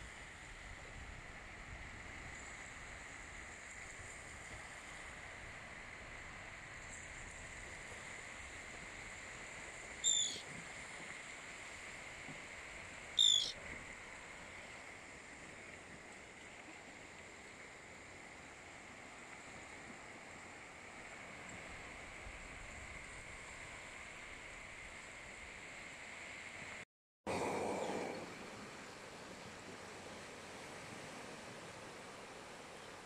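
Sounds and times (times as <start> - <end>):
short high bird calls: 10.0 - 10.4, 13.2 - 13.6.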